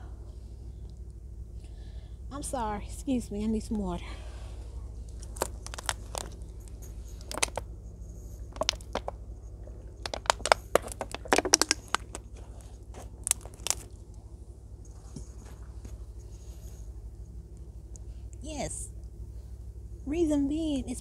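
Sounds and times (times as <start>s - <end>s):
steady low hum: 0.0s - 21.0s
plastic bottle clicks and crinkles: 5.3s - 6.4s, 7.2s - 7.6s, 8.5s - 9.1s, 10.0s - 13.9s.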